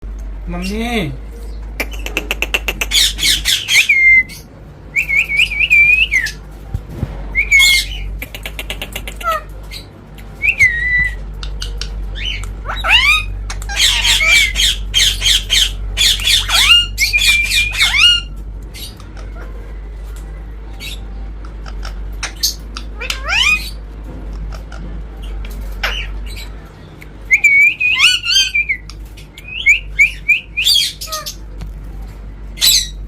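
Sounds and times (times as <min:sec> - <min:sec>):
parrot squawking: 0:01.8 - 0:04.5, 0:07.4 - 0:19.6, 0:20.8 - 0:23.8, 0:25.8 - 0:26.5, 0:27.4 - 0:28.8, 0:29.4 - 0:31.4, 0:32.6 - 0:33.0.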